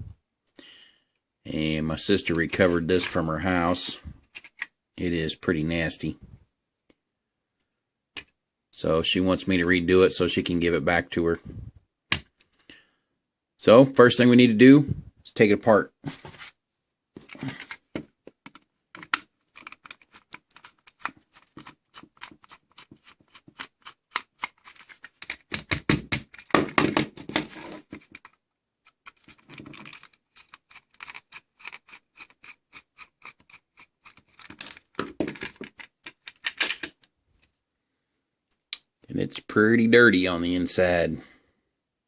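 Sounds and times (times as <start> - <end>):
small metal and plastic parts clicking: 18.4 - 26.8, 27.8 - 37.1.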